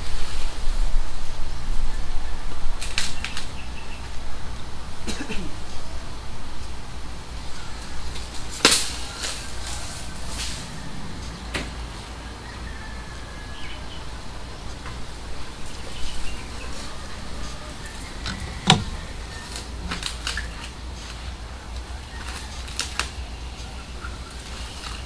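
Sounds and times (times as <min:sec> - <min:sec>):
light knocks and clicks: 0:18.0 - 0:19.1.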